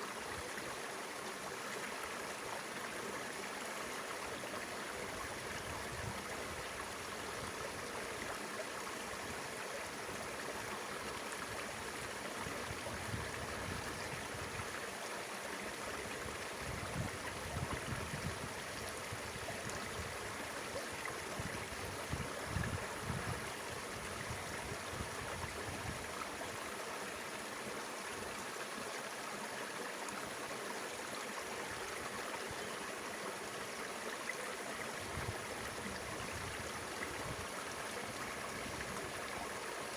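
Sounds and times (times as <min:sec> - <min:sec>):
river water rushing: 0:18.4 - 0:39.9.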